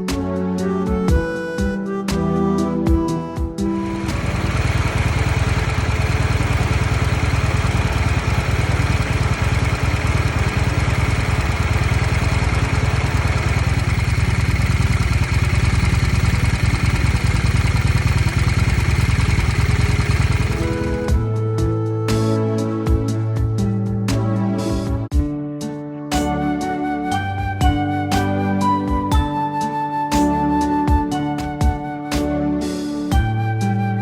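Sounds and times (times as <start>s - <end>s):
motorcycle engine running steadily: 3.6s - 21.4s.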